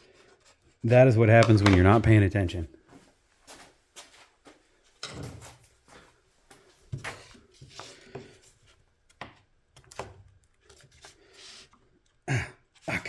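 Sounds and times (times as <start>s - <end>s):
handling knocks and clicks: 1.3s - 2.2s.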